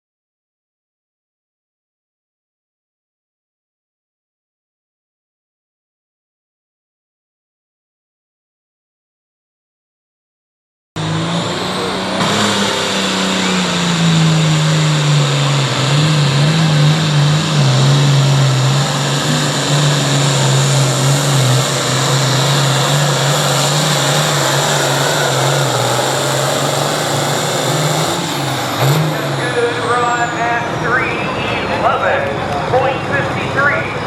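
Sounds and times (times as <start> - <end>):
tractor diesel engine droning: 11.0 - 34.0.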